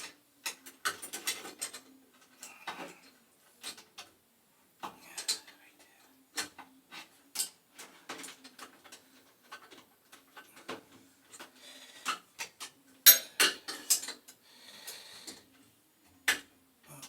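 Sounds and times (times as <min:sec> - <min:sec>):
hand tools clinking on metal: 0:13.1 - 0:14.2.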